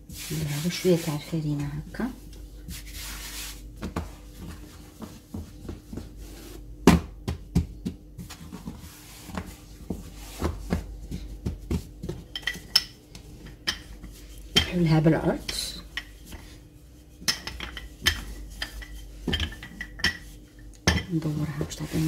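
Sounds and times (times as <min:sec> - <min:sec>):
flour brushing hiss: 0:00.0 - 0:01.3, 0:02.6 - 0:03.6
hands patting dough: 0:00.0 - 0:17.0.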